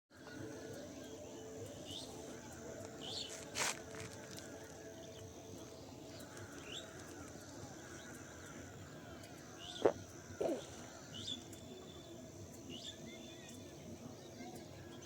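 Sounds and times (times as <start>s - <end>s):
birds chirping: 0.1s - 15.0s
steady high-pitched hiss: 0.2s - 15.0s.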